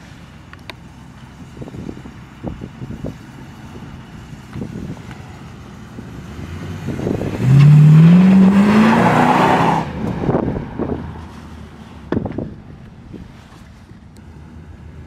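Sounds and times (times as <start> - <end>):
car engine revving: 2.5 - 12.3.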